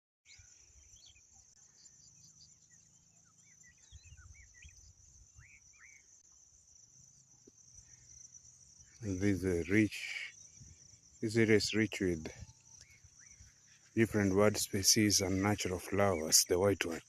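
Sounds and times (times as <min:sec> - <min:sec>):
short bird chirps: 0:00.3 - 0:06.3
crickets trilling: 0:00.3 - 0:17.0.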